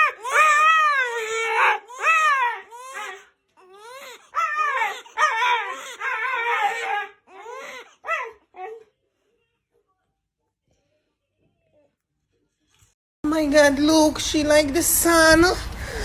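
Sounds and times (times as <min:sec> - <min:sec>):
dog whining and crying: 0:00.0 - 0:03.2, 0:03.8 - 0:08.9.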